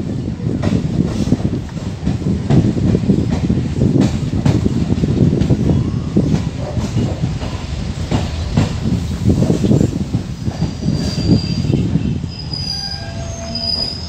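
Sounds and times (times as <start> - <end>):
train rumble and clatter: 0.0 - 14.0
high brake squeal: 10.5 - 14.0.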